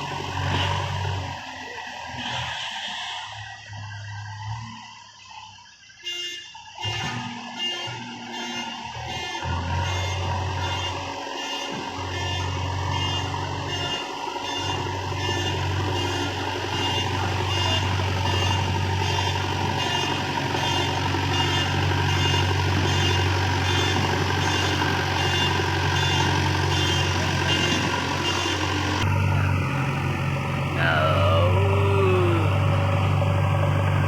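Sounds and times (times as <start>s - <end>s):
diesel engine running: 11.9s - 34.0s.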